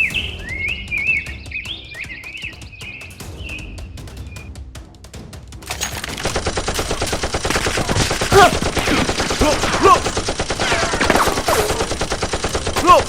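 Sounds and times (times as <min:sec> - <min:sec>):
rapid automatic gunfire: 0:05.7 - 0:13.0.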